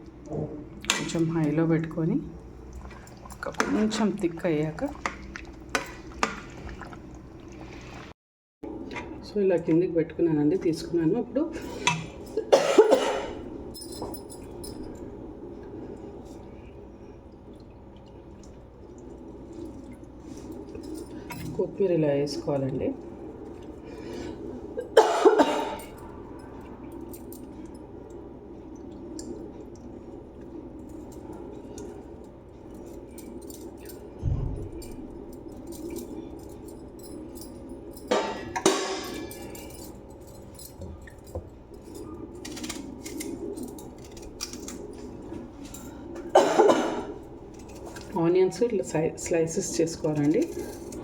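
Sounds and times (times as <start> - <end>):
steady hum: 0.0 - 51.0
metal utensils clattering against pan: 38.1 - 39.6.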